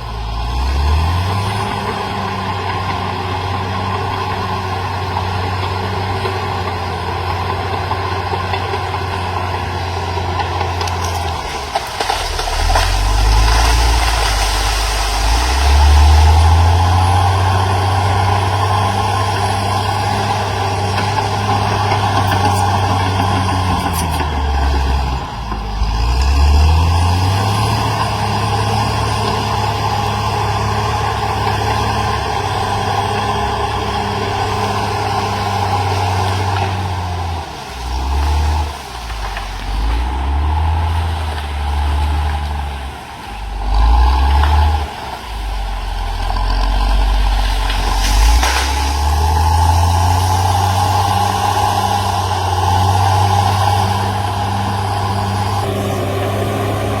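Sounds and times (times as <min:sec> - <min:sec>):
bulldozer diesel engine under load: 0:00.0 - 0:57.0.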